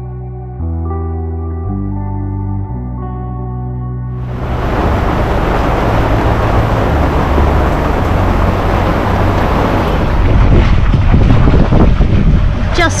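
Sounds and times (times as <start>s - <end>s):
boat moving through water: 4.2s - 13.0s
wind buffeting microphone: 4.2s - 13.0s.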